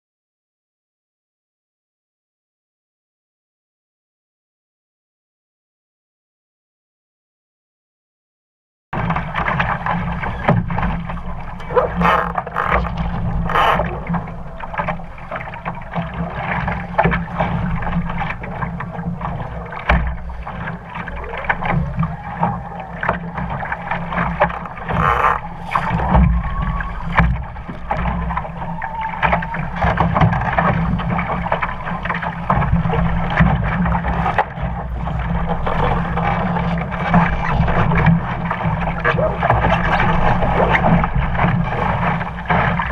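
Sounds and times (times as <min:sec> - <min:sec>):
low rumble: 0:09.0 - 0:42.0
water hitting hull: 0:09.0 - 0:42.9
water rushing along boat hull: 0:09.0 - 0:42.9.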